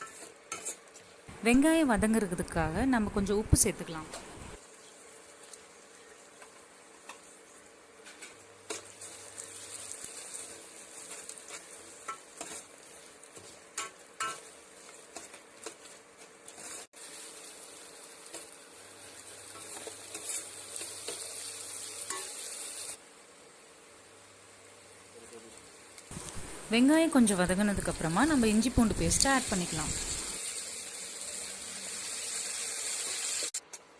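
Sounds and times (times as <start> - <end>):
spatula scraping and tapping pan: 0.0 - 1.1, 8.0 - 16.9, 19.5 - 21.3
shallots sizzling in hot oil: 0.0 - 33.6.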